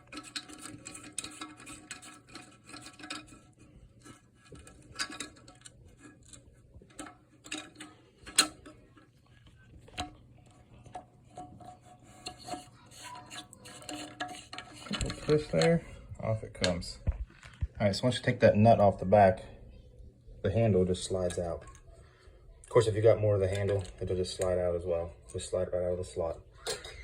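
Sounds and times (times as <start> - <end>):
plastic toilet tank parts clicking: 0.0 - 15.8, 22.6 - 24.6.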